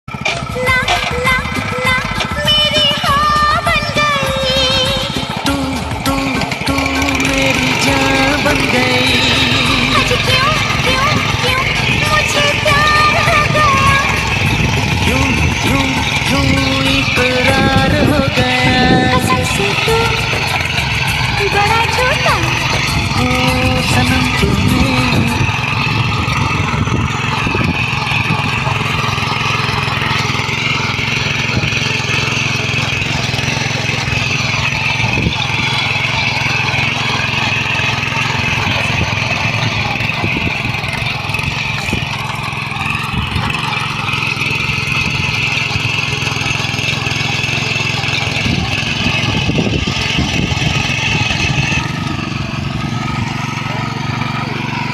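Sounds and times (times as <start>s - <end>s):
power weeder engine running: 0.0s - 54.9s.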